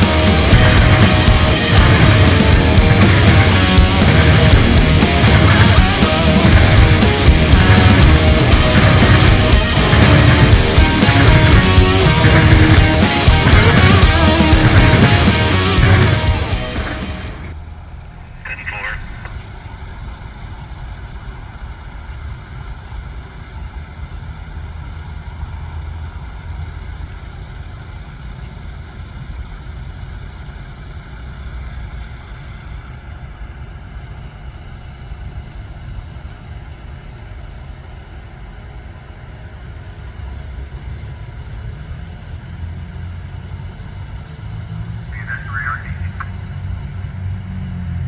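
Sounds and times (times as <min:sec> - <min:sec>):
vehicle engine rumbling: 0:00.0 - 0:48.0.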